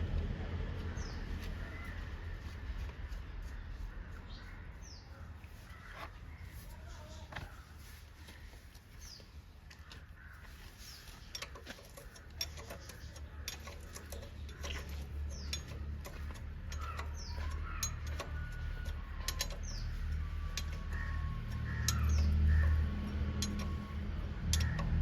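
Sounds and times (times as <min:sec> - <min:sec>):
low hum: 0:00.0 - 0:04.8
metallic spanner clicks and taps: 0:11.3 - 0:19.8, 0:20.5 - 0:23.9.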